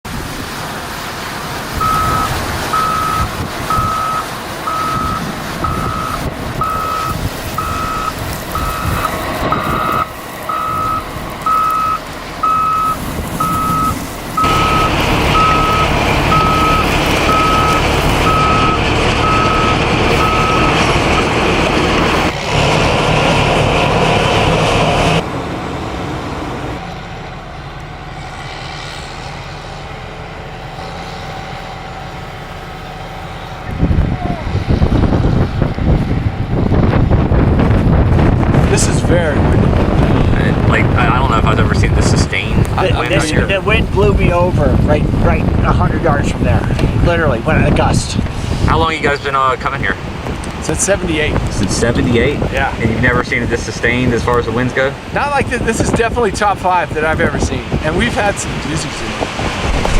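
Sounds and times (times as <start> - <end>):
vehicle and outdoor noise: 0.0 - 59.9
reversing alarm beeping: 1.8 - 21.3.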